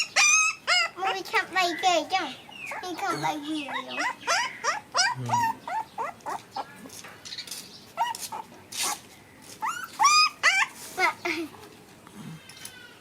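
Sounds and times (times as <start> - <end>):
puppies yipping and whining: 0.0 - 1.3, 2.6 - 6.8, 8.0 - 11.0.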